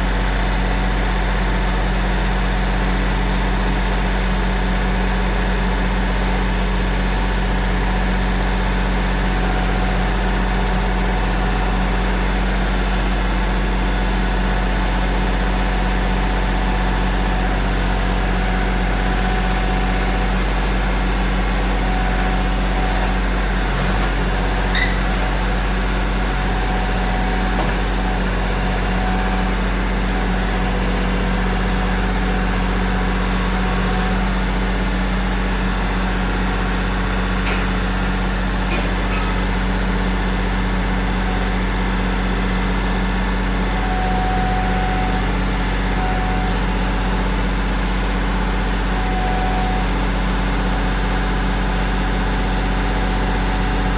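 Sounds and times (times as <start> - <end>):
tractor engine running: 0.0 - 53.9
brief high squeak: 24.7 - 25.2.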